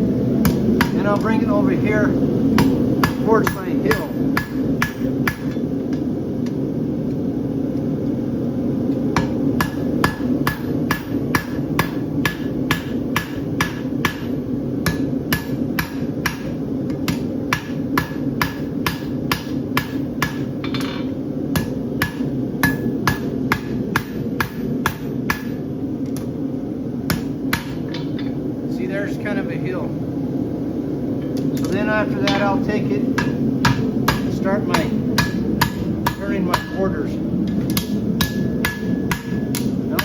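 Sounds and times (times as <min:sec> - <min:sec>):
hammer striking steel on anvil: 0:00.4 - 0:01.4, 0:02.6 - 0:05.6, 0:09.2 - 0:25.6, 0:27.1 - 0:28.4, 0:32.2 - 0:32.6, 0:33.2 - 0:37.0, 0:37.6 - 0:40.0.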